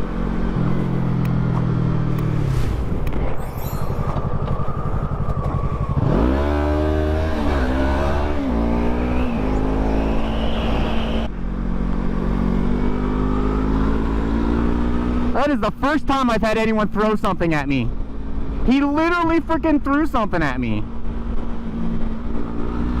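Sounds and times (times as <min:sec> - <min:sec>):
motorcycle engine accelerating: 0:00.0 - 0:15.5
wind rushing: 0:02.2 - 0:11.3.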